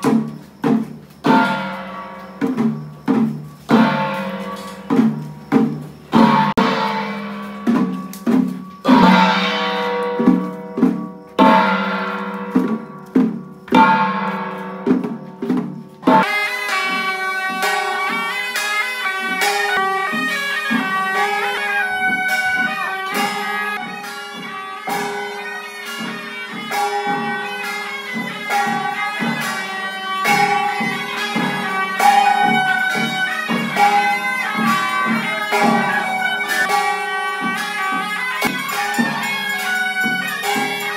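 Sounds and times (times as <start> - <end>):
quick percussion strokes: 0.0 - 40.9
ringing percussion strikes: 0.0 - 40.9
reedy wind instrument melody: 16.1 - 40.9.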